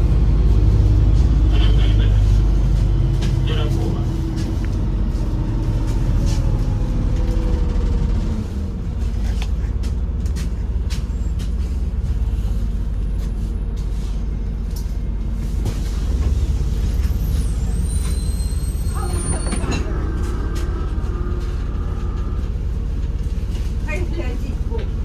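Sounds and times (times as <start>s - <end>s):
bus engine rumbling: 0.0s - 25.0s.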